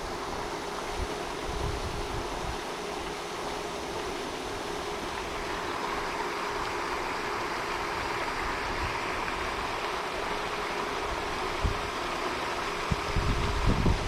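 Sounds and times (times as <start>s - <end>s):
faint steady hum: 0.0s - 14.0s
fountain spray splashing: 0.0s - 14.0s.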